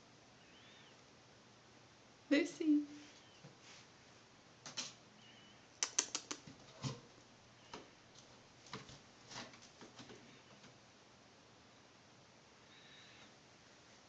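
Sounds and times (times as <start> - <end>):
cat claws scratching carpet: 5.8 - 7.0.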